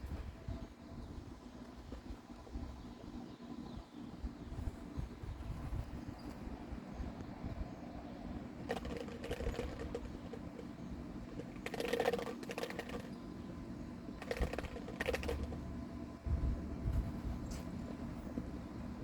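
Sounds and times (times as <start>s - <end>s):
low steady rumble: 0.0s - 19.0s
clicking and rattling: 8.6s - 13.2s, 14.2s - 15.6s.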